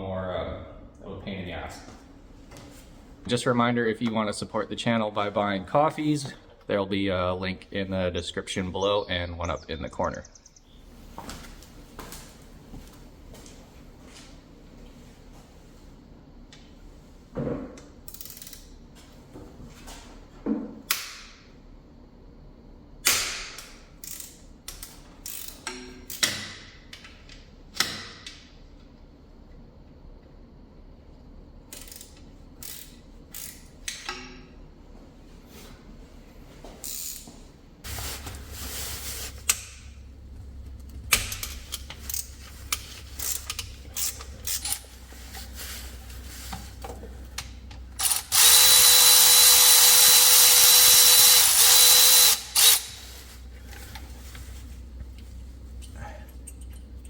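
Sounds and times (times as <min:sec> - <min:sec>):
low steady hum: 0:26.8 - 0:48.5, 0:52.4 - 0:57.0
socket ratchet clicking: 0:48.0 - 0:53.0.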